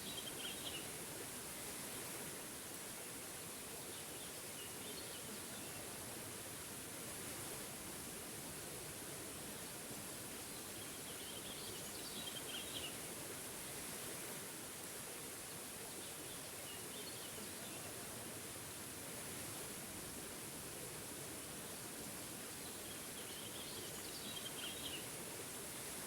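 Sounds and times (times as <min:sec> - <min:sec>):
small waterfall rushing: 0:00.0 - 0:26.0
songbird chirping: 0:22.6 - 0:25.1.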